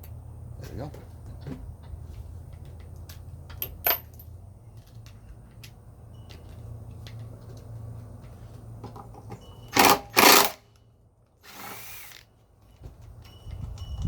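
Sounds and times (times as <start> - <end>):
power drill spinning out bolt: 9.7 - 10.6, 11.4 - 12.3.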